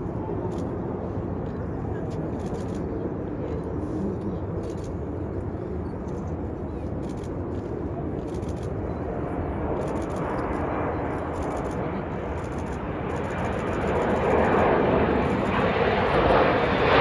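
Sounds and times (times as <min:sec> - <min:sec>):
jet engine rushing: 0:04.4 - 0:17.0.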